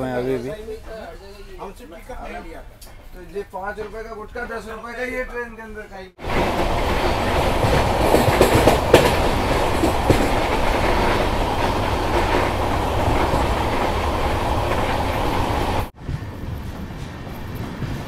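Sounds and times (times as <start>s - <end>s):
rumble of train wheels on track: 6.2s - 18.0s
wheels clacking over rail joints: 6.2s - 18.0s.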